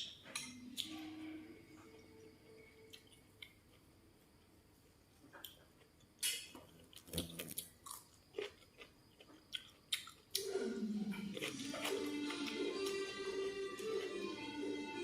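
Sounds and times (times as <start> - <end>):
chewing crisp food: 2.9 - 3.9, 5.3 - 14.8
background music: 10.4 - 15.0.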